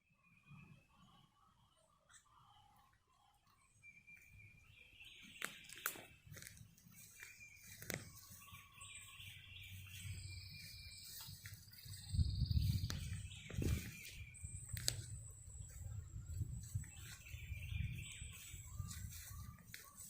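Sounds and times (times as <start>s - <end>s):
songbirds chirping: 0.0s - 20.0s
sharp clicks: 14.7s - 15.1s.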